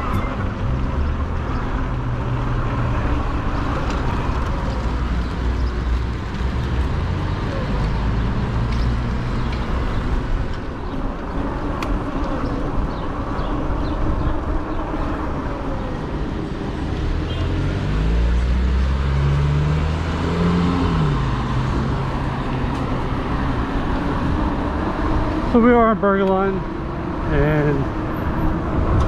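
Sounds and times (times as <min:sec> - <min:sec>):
road and wind rumble: 0:00.0 - 0:29.0
vehicle engine passing by: 0:00.7 - 0:10.4, 0:13.8 - 0:25.5.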